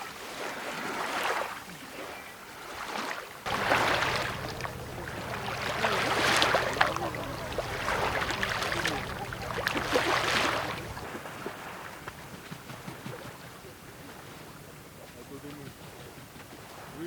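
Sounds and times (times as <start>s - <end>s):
steady low hum: 3.5s - 11.1s
lake waves washing onto shore: 3.5s - 12.4s.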